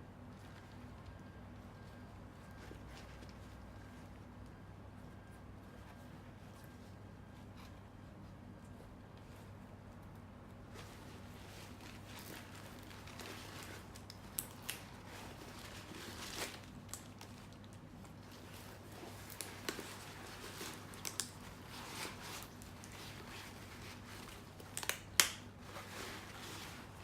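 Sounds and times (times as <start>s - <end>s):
faint steady hum: 0.0s - 27.0s
soft fabric rustling: 0.4s - 24.6s, 25.5s - 27.0s
sharp clicks and snips: 24.7s - 25.4s.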